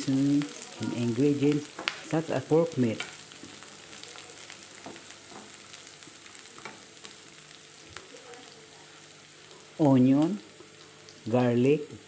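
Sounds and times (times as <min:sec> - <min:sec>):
vegetables sizzling in a pan: 0:00.0 - 0:12.0
spatula tapping a pan: 0:01.6 - 0:02.1, 0:03.0 - 0:05.8, 0:06.6 - 0:06.9.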